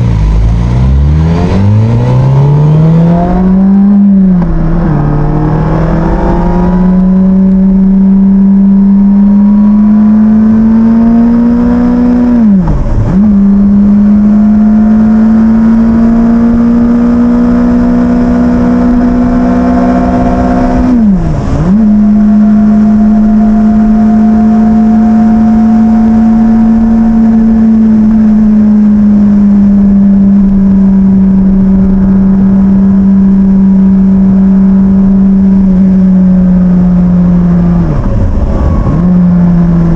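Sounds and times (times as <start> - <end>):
rushing wind: 30.5 - 39.9.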